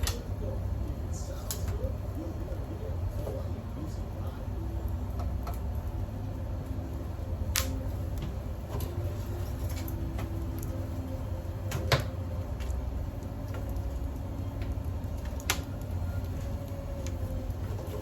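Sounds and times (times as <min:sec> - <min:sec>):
twig fire crackling: 0:00.0 - 0:18.0
sharp pops and snaps: 0:07.4 - 0:08.3, 0:11.7 - 0:17.2.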